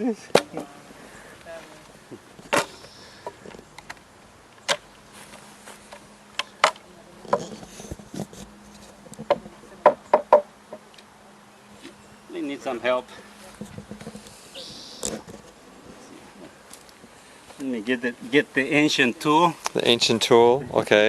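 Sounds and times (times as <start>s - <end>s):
honeybees humming: 0.0s - 19.6s
wooden knocks of beehive boxes: 9.1s - 10.8s.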